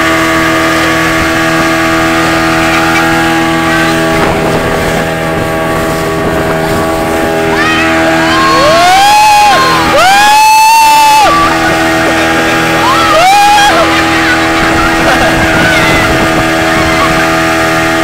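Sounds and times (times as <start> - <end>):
motorboat engine running: 0.0 - 18.0
people yelling: 6.6 - 18.0.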